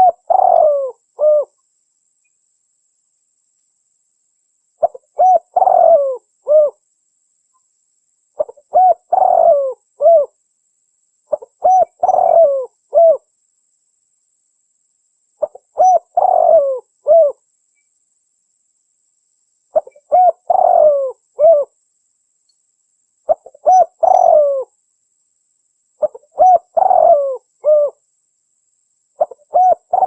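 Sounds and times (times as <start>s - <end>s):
dove cooing: 0.0s - 1.5s, 4.8s - 6.8s, 8.4s - 10.4s, 11.3s - 13.3s, 15.4s - 17.4s, 19.7s - 21.7s, 23.3s - 24.7s, 26.0s - 28.0s, 29.2s - 30.0s.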